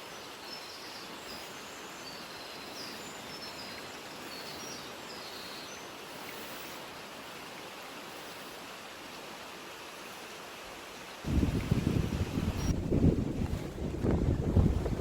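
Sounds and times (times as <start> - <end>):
mountain stream rushing: 0.0 - 15.0
wind buffeting microphone: 11.2 - 15.0.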